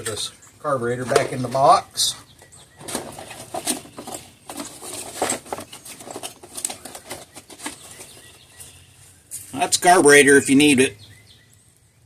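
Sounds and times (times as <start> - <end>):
packaging rustling and crinkling: 2.8 - 8.4.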